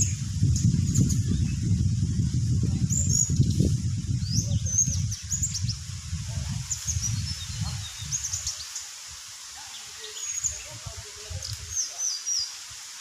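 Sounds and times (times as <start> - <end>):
low rumbling noise: 0.0 - 8.2
small birds chirping: 0.0 - 9.0, 9.6 - 12.7.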